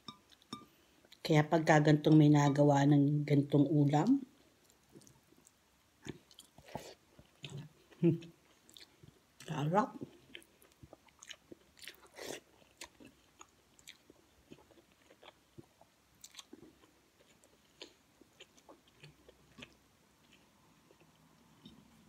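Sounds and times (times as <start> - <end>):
faint chewing: 4.4 - 22.0.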